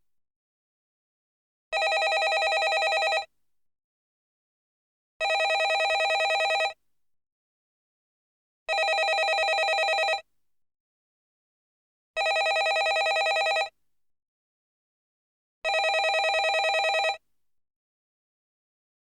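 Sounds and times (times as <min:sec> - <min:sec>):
telephone ringing: 0:01.8 - 0:03.3, 0:05.2 - 0:06.8, 0:08.7 - 0:10.2, 0:12.2 - 0:13.7, 0:15.7 - 0:17.2.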